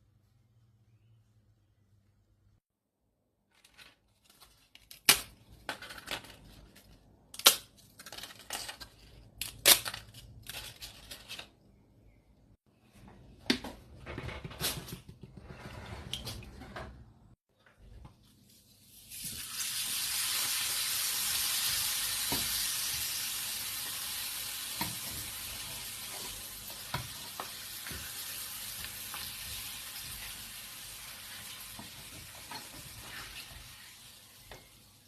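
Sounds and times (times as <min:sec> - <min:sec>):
papadam snapping and crackling: 0:04.7 - 0:05.4, 0:07.3 - 0:08.5.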